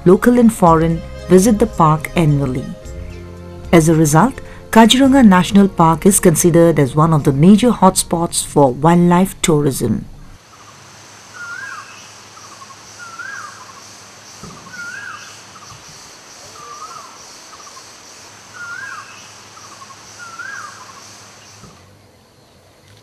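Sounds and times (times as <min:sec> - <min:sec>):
insects buzzing: 0:10.4 - 0:22.1
bird call with ticking and whistle: 0:14.5 - 0:15.8, 0:18.6 - 0:21.0.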